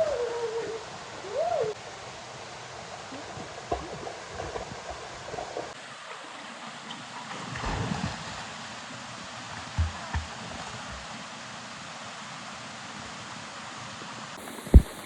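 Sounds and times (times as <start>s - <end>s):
waterfall rushing hiss: 14.4s - 15.0s.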